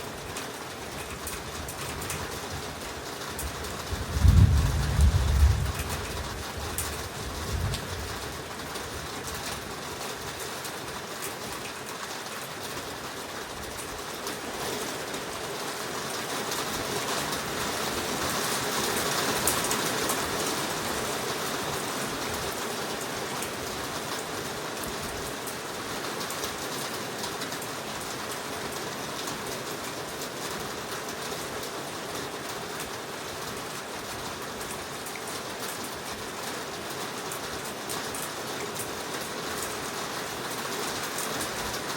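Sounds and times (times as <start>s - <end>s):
heavy rain in a forest: 0.0s - 41.9s.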